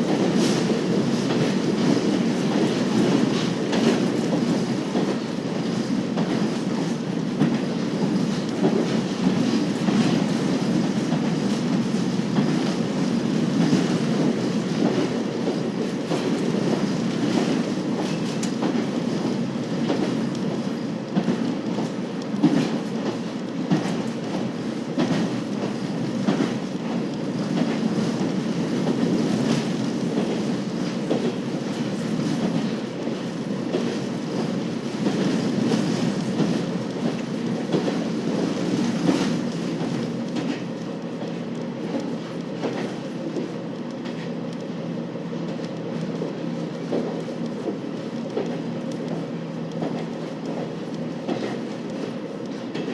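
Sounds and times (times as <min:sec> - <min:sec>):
railcar engine and wheels rumbling: 0:00.0 - 0:52.9
wheels clicking over rail joints: 0:45.5 - 0:52.9.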